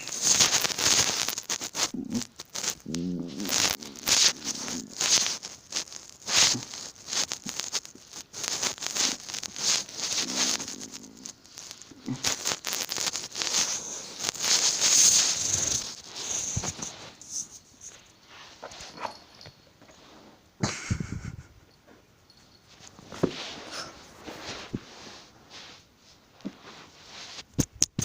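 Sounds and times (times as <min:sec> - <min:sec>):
cat scratching and rustling: 0:00.0 - 0:20.3.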